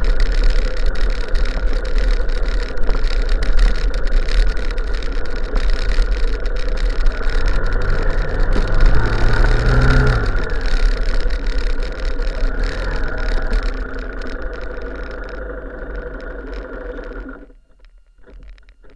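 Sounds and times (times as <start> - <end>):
wind rumble on microphone: 0.0 - 17.2
vehicle engine running: 0.0 - 18.9.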